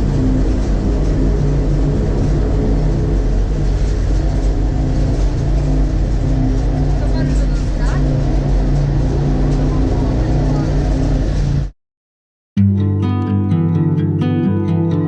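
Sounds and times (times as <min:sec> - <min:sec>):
low engine drone: 0:00.0 - 0:11.7
road noise: 0:00.0 - 0:11.7.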